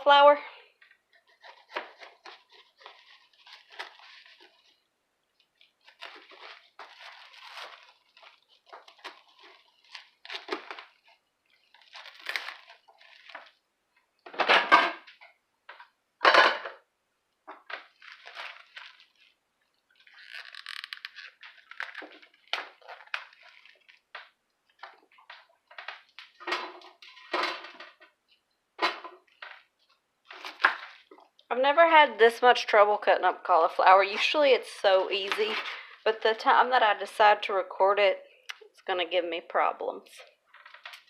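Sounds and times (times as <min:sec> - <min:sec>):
knife crunching through cauliflower: 0:01.2 - 0:04.8, 0:05.6 - 0:11.0, 0:11.8 - 0:13.6.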